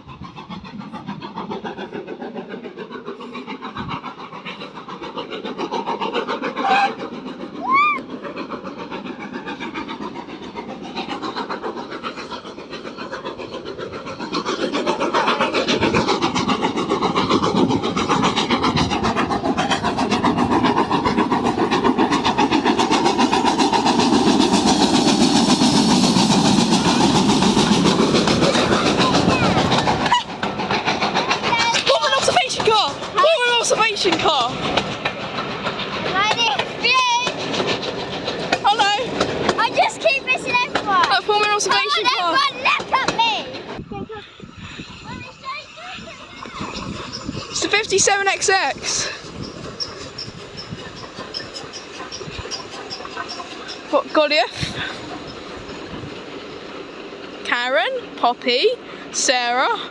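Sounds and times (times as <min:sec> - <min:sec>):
train carriages rumbling past: 0:00.0 - 0:59.9
wheels clicking over rail joints: 0:03.4 - 0:43.8, 0:45.2 - 0:59.9
steam train whistle blasts: 0:06.6 - 0:07.0.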